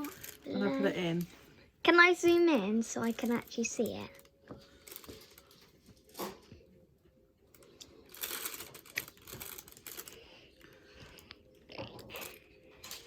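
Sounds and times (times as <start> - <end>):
plastic piping bag crinkling: 3.0 - 6.4, 7.6 - 11.0.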